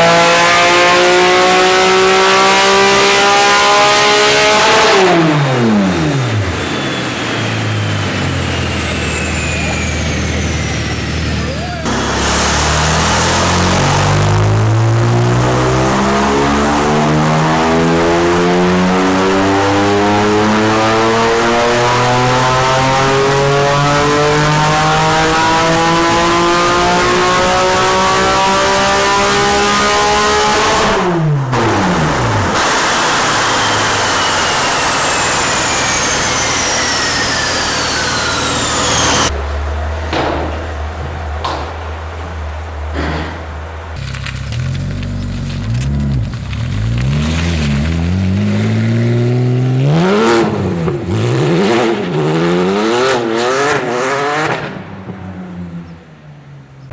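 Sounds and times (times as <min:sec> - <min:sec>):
sports car engine revving: 0:00.0 - 0:06.6, 0:11.8 - 0:55.8
high whine falling in pitch: 0:02.6 - 0:44.0
exhaust pops: 0:29.3 - 0:48.8.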